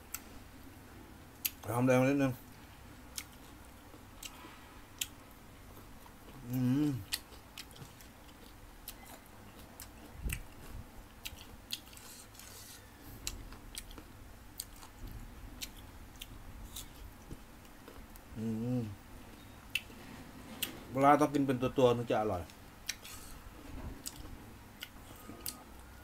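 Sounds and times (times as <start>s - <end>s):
person chewing crunchy mango: 5.0s - 15.0s, 24.0s - 25.9s
person humming: 6.4s - 7.1s, 18.3s - 19.0s.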